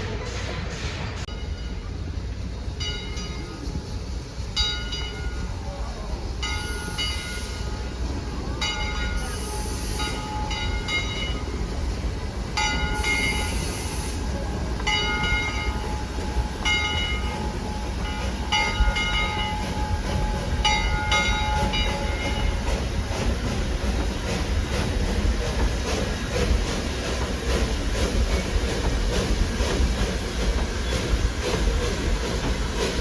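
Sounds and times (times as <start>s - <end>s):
low rumble of train: 0.0s - 33.0s
steam train bell ringing: 1.3s - 11.7s, 12.5s - 14.1s, 14.8s - 25.0s.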